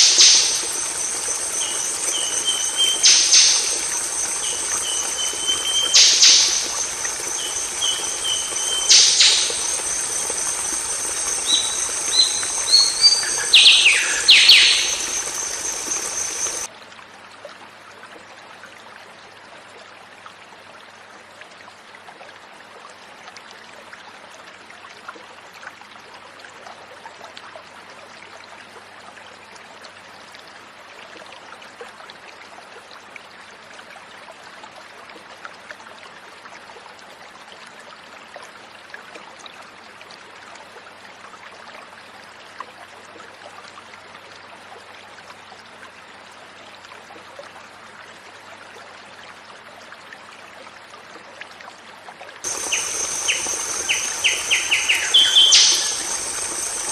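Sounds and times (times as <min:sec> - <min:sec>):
bird whistling calls: 0:00.0 - 0:16.7, 0:52.5 - 0:56.9
faint hiss: 0:00.0 - 0:16.7, 0:52.5 - 0:56.9
high-pitched whine: 0:00.0 - 0:16.7, 0:52.5 - 0:56.9.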